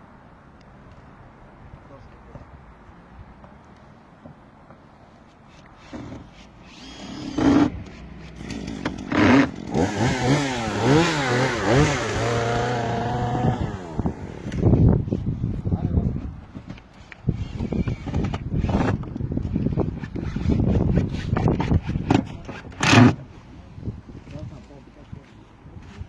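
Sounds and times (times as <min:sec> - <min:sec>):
chainsaw engine revving: 0:06.7 - 0:14.6.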